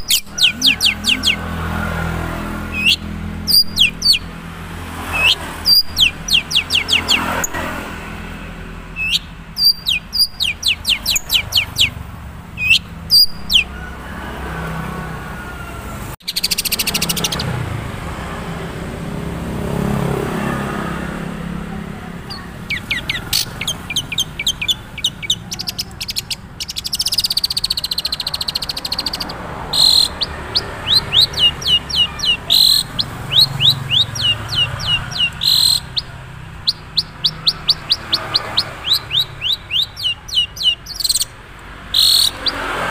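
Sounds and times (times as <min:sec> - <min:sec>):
shrike sharp chirps: 0:00.0 - 0:01.7, 0:02.7 - 0:04.3, 0:05.1 - 0:07.8, 0:09.0 - 0:12.0, 0:22.2 - 0:42.8.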